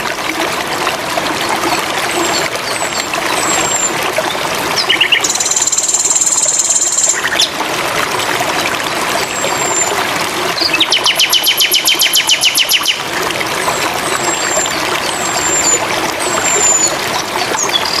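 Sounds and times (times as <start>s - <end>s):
trickling water: 0.0s - 18.0s
nightingale singing: 10.6s - 13.0s.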